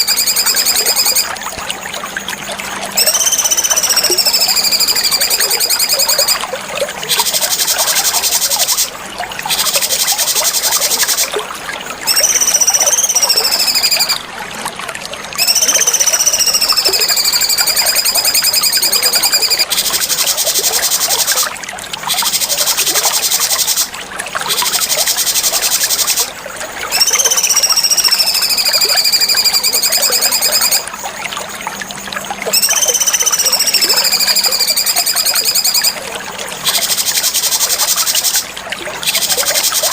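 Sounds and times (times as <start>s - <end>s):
bird singing with whistles and trills: 0.0s - 1.4s, 2.9s - 6.4s, 7.1s - 11.3s, 12.0s - 14.2s, 15.3s - 21.4s, 26.9s - 30.9s, 32.5s - 36.0s.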